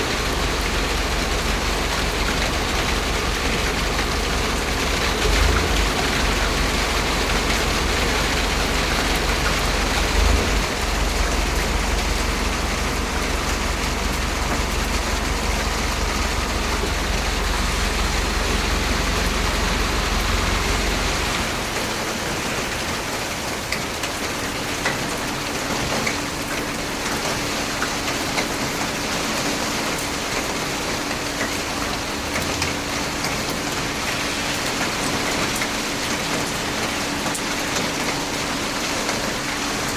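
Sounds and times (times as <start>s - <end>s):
low rumble: 0.0s - 21.8s
heavy rain pouring: 0.0s - 39.9s.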